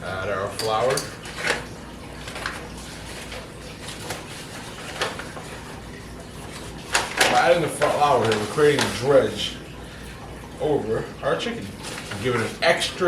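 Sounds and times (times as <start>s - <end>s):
low steady hum: 0.0s - 13.0s
utensils tapping against a bowl: 0.5s - 1.6s.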